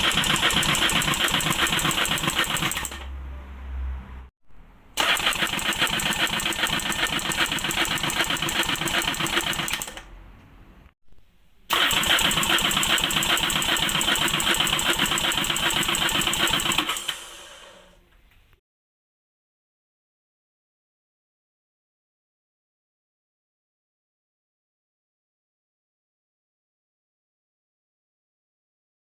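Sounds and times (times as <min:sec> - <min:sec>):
engine turning over: 0:00.0 - 0:03.2, 0:05.0 - 0:10.1, 0:11.7 - 0:18.0.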